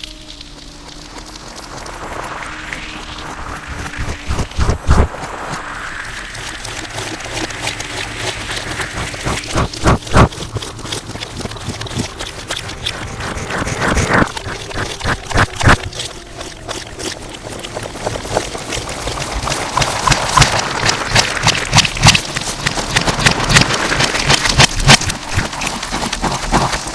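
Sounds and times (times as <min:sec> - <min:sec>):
slime squelching and popping: 0:06.4 - 0:26.9.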